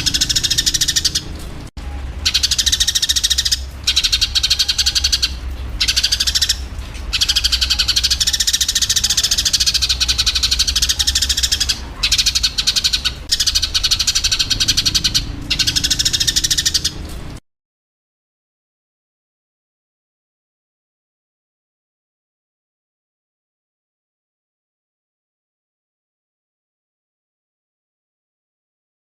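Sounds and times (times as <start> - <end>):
sparrows chattering: 0.0 - 17.1
steady low hum: 0.0 - 17.4.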